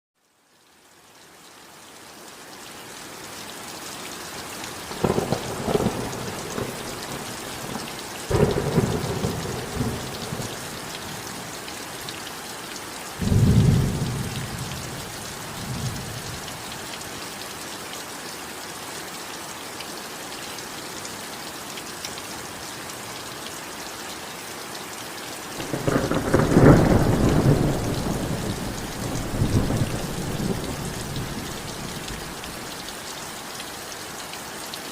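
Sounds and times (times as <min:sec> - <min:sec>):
heavy rain: 0:00.3 - 0:34.9
thunder rumbling: 0:05.0 - 0:11.1, 0:25.6 - 0:32.7.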